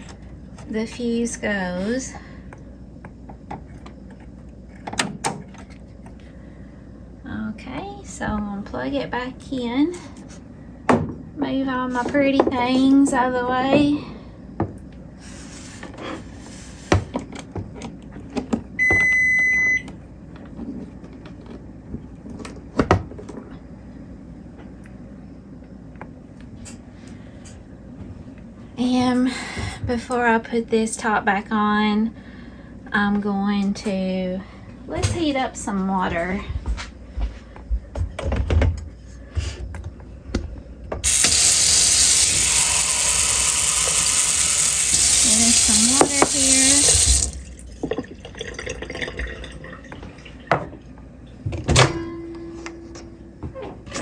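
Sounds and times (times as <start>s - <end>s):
microwave beep: 18.8s - 20.0s
tap water running into container: 41.0s - 50.7s.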